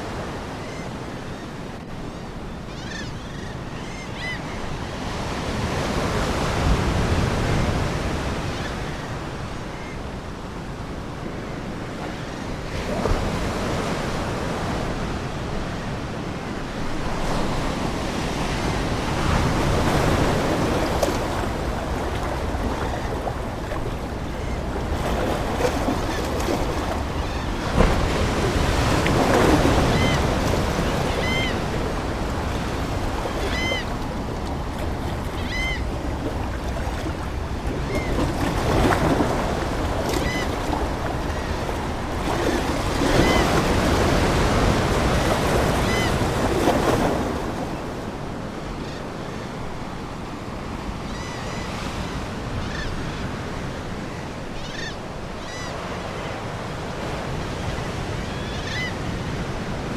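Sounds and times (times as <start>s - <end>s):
ocean waves breaking ashore: 0.0s - 59.9s
faint seagull calls: 2.6s - 4.7s, 29.4s - 31.9s, 33.2s - 34.0s, 35.3s - 37.0s.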